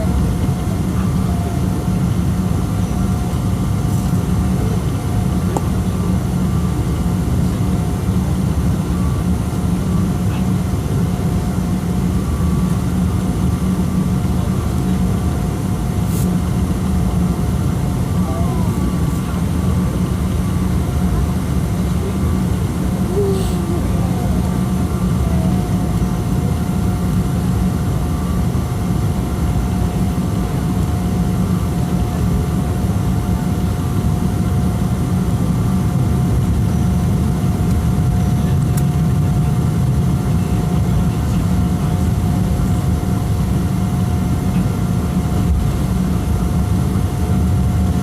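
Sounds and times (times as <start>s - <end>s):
low rumble of aircraft engines: 0.0s - 48.0s.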